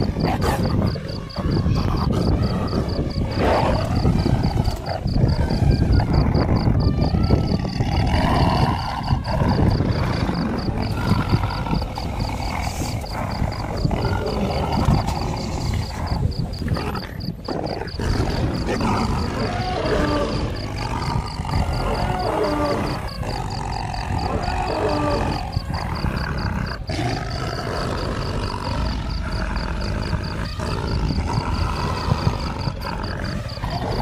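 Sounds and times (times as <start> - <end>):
lioness growling and roaring: 0.0 - 34.0
higher pitched animal calls: 17.9 - 34.0.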